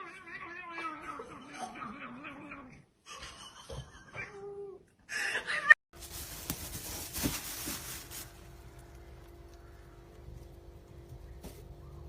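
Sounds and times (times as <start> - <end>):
steady hum and hiss: 6.0 - 12.0.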